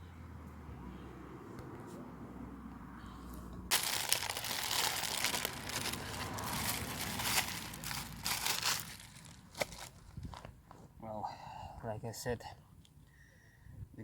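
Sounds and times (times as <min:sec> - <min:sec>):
dense crinkling and crackling: 0:03.7 - 0:10.6.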